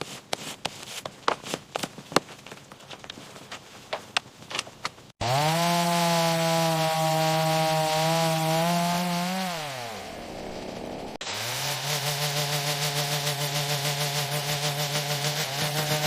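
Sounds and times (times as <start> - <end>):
chainsaw revving: 5.2 - 16.0.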